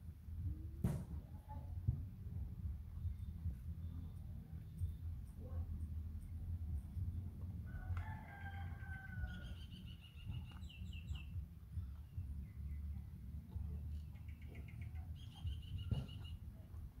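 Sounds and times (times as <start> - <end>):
low background rumble: 0.0 - 17.0
bird calls: 8.8 - 12.9, 13.9 - 16.5.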